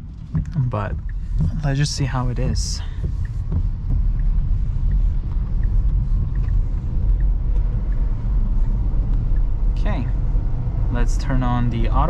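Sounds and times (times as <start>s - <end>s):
low car cabin rumble: 0.0s - 12.0s
faint light ticks: 4.2s - 9.6s.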